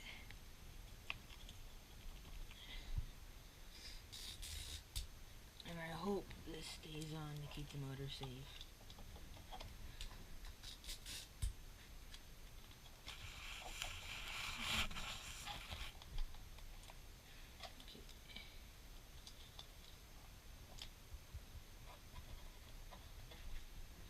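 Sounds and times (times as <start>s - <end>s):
tape rasp: 3.9s - 5.1s, 10.5s - 11.4s.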